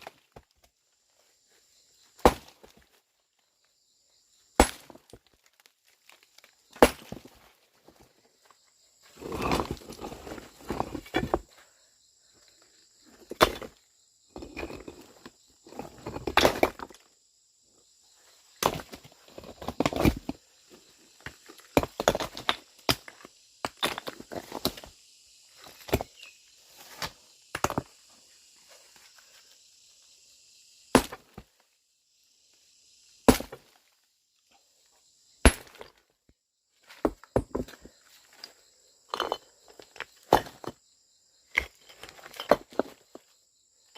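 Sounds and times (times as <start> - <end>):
rough scraping or rustling: 9.0 - 11.4.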